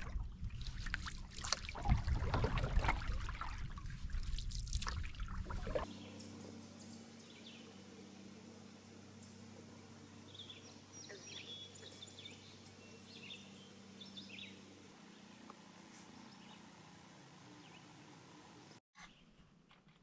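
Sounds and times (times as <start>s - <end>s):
low steady hum: 0.0s - 18.8s
faint birdsong: 5.8s - 19.4s.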